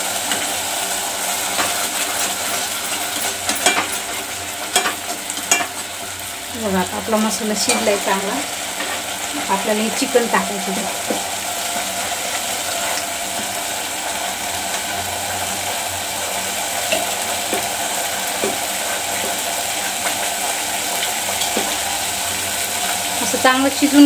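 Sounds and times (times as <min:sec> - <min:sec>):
paste sizzling in oil: 0:00.0 - 0:24.0.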